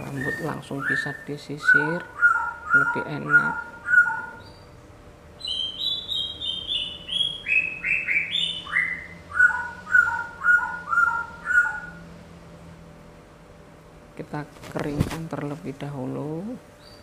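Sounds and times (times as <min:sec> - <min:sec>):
songbird whistling: 0:00.0 - 0:04.7, 0:05.4 - 0:12.0.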